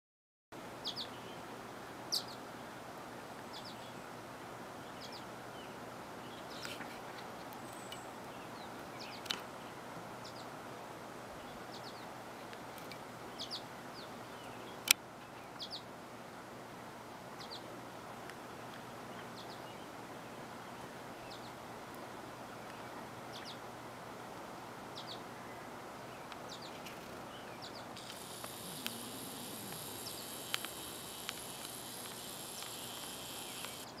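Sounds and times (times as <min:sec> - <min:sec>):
low background noise: 0:00.6 - 0:34.0
high bird chirps: 0:27.7 - 0:34.0
high hiss: 0:27.9 - 0:34.0.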